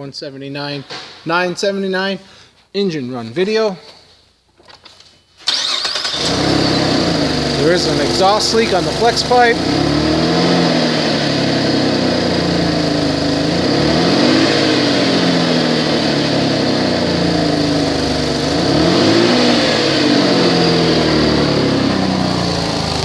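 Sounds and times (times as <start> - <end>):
car engine revving: 5.5 - 23.0.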